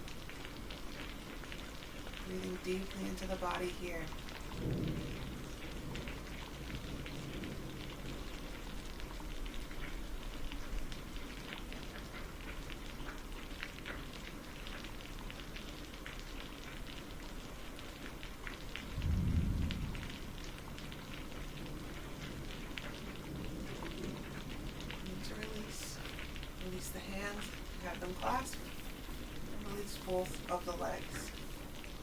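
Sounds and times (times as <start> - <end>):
rain drops pattering: 0.0 - 32.0
low rumble: 18.8 - 22.3.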